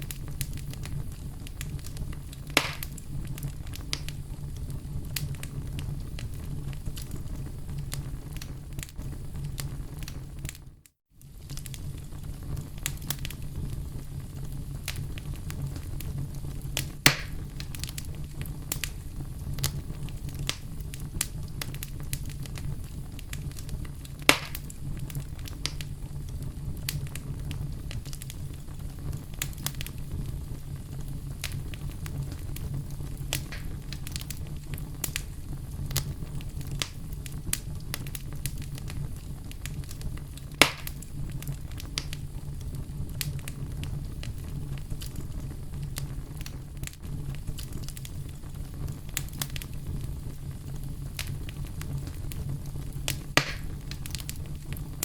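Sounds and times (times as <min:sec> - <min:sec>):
low rumble of fire: 0:00.0 - 0:55.0
wood fire crackling: 0:00.0 - 0:55.0
sharp loud pops: 0:02.6 - 0:03.0, 0:17.1 - 0:17.4, 0:24.3 - 0:24.6, 0:33.4 - 0:33.8, 0:40.6 - 0:40.9, 0:53.4 - 0:53.7.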